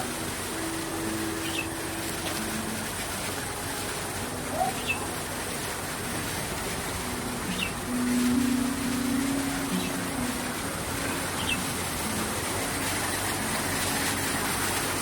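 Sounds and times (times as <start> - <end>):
steady rushing noise: 0.0 - 15.0
bird chirps: 4.5 - 5.0, 7.5 - 7.8, 11.1 - 11.6.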